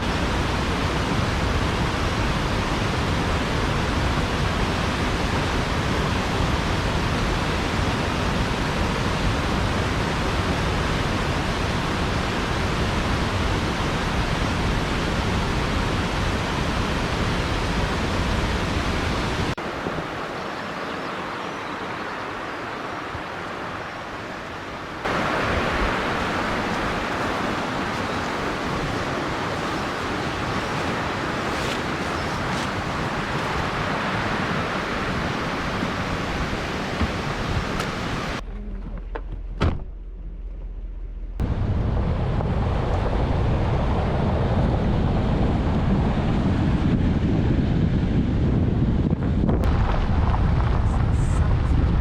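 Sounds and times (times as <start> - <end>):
waterfall rushing: 13.7 - 38.4.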